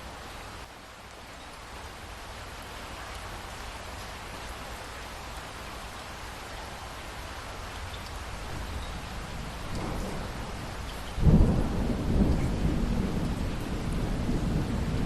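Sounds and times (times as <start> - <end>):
heavy rain hissing: 6.4 - 15.0.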